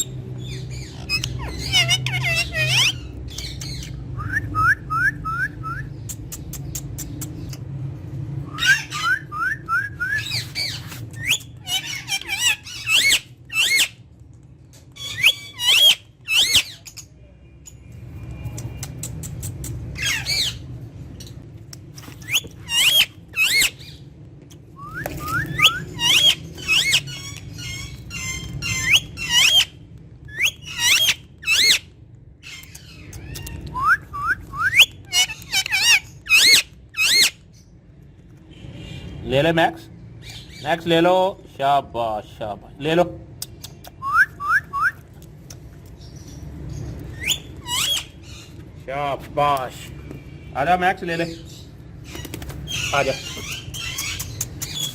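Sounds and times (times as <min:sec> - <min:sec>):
parakeet chirping and squawking: 0:00.0 - 0:04.2, 0:05.9 - 0:09.3, 0:10.2 - 0:17.9, 0:18.6 - 0:33.8, 0:34.4 - 0:39.2, 0:40.0 - 0:41.0, 0:45.4 - 0:54.9.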